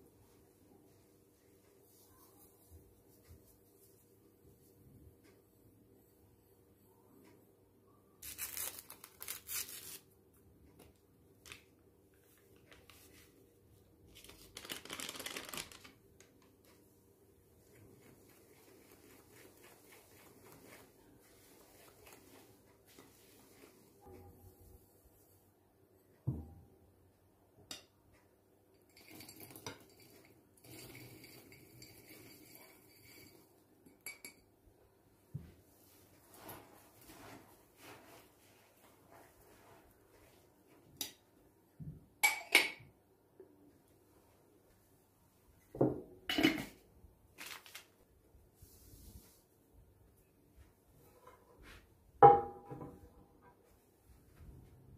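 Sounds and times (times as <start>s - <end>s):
rustling and crinkling: 17.6s - 24.2s, 35.4s - 40.9s, 47.3s - 49.5s
dishes and cutlery clinking: 28.8s - 34.5s, 46.3s - 46.8s.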